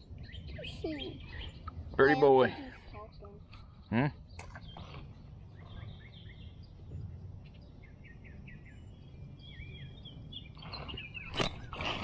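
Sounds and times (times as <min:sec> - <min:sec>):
birds chirping: 0:00.0 - 0:12.0
steady low rumble: 0:00.0 - 0:12.0
trilled bird song: 0:00.0 - 0:12.0.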